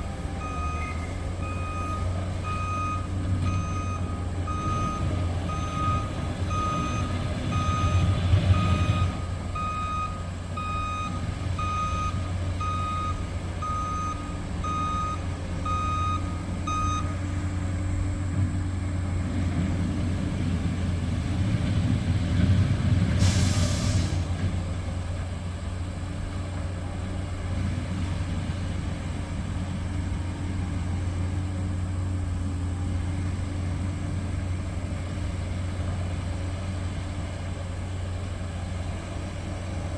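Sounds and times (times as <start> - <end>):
truck reversing alarm beeping: 0.0 - 19.1
diesel engine running: 0.0 - 39.9
air brakes hiss: 23.2 - 24.4.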